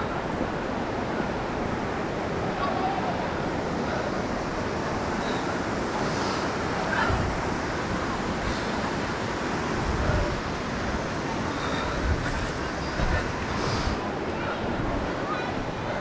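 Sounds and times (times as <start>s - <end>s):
whitewater rushing around boulders: 0.0s - 16.0s
wind buffeting microphone: 0.0s - 16.0s.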